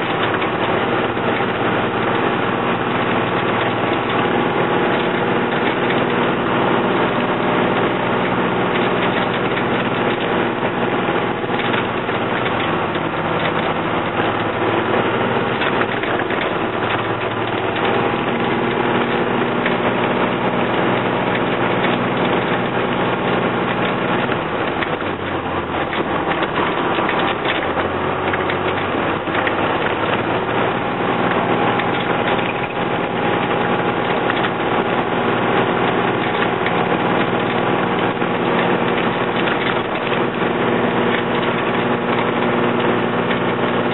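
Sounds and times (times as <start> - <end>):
diesel bus engine at full throttle: 0.0 - 43.9.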